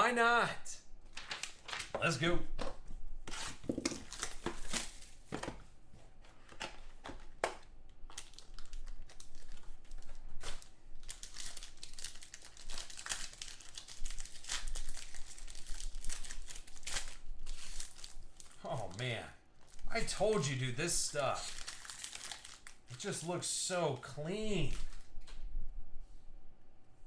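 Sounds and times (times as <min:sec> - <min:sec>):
plastic wrapping crinkling and tearing: 0:01.1 - 0:01.8, 0:03.6 - 0:05.3, 0:06.5 - 0:23.1, 0:24.0 - 0:25.4.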